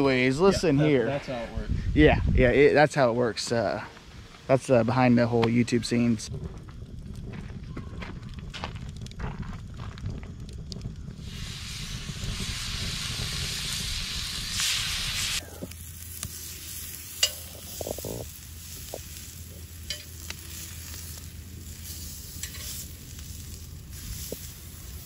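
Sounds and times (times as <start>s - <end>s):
steak searing in a pan: 11.1s - 25.0s
bacon sizzling in a skillet: 11.2s - 25.0s
metal tongs clinking on skillet: 17.2s - 17.8s, 19.8s - 20.4s, 22.3s - 22.8s.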